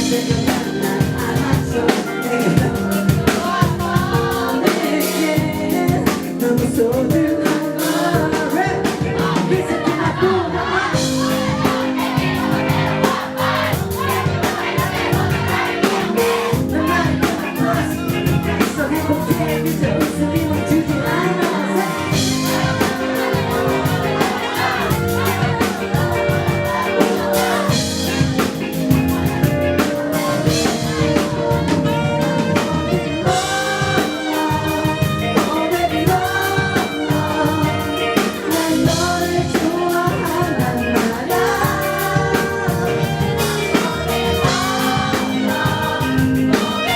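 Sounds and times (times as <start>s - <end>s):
person singing: 0.0s - 12.8s, 13.4s - 46.9s
live band music: 0.0s - 46.9s.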